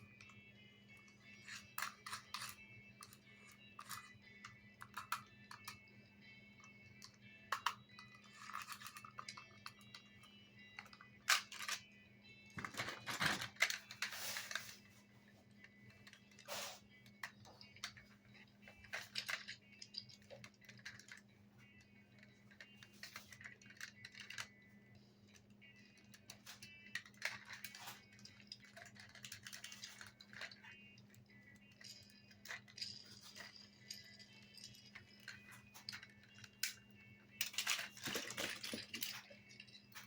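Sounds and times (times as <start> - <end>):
faint music: 0.0 - 40.0
low steady hum: 0.0 - 40.0
plastic toys clicking and rattling: 0.0 - 40.0.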